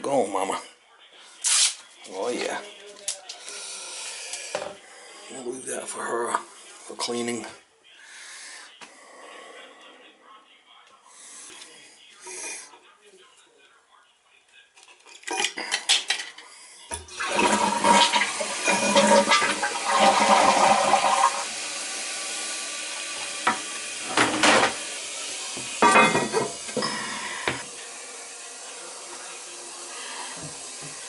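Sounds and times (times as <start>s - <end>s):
toilet flush water rushing: 16.9s - 31.0s
toilet tank refilling hiss: 16.9s - 31.0s.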